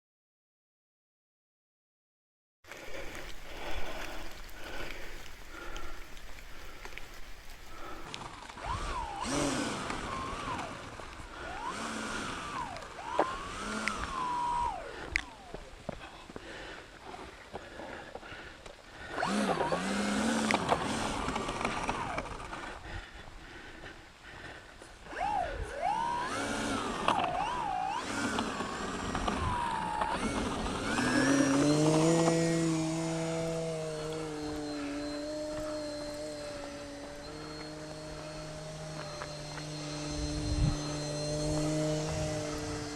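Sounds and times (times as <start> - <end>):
model plane electric motor whining: 6.6 - 16.0, 19.0 - 23.6, 24.9 - 42.9.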